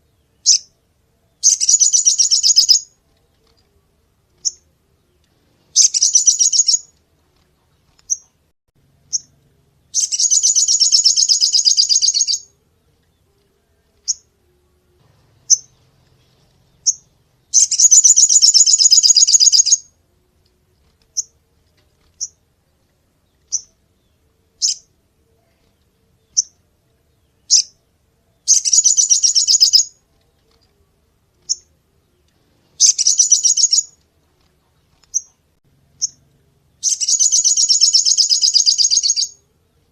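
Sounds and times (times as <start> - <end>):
bird buzzy trill: 1.4 - 3.0, 4.4 - 4.7, 5.6 - 7.0, 9.0 - 12.6, 14.0 - 20.0, 24.6 - 24.9, 28.5 - 30.0, 32.7 - 34.0, 35.0 - 39.9
bird high chips: 10.0 - 12.5, 36.8 - 39.4.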